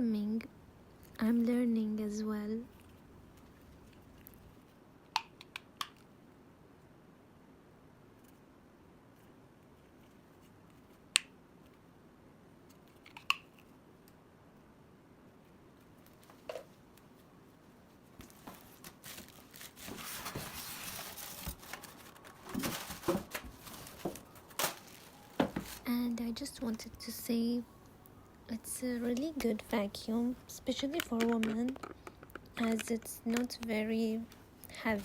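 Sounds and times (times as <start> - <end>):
plastic rustling: 18.2 - 27.0
plastic attachments clicking: 31.0 - 33.6.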